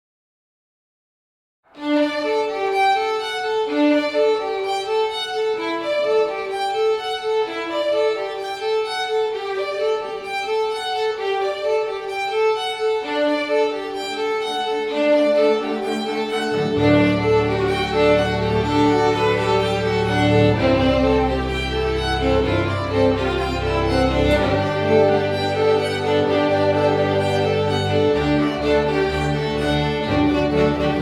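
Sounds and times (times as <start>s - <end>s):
bowed violin melody: 1.7s - 31.0s
low held note: 16.3s - 31.0s.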